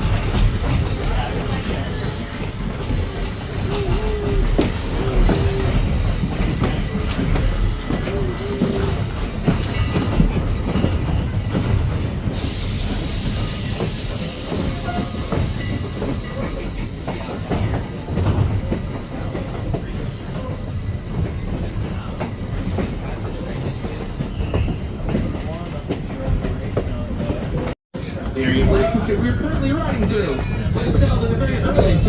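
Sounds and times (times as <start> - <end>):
railroad car rumbling: 0.0 - 32.0
wheels clicking over rail joints: 0.0 - 32.0
hiss: 12.4 - 17.7.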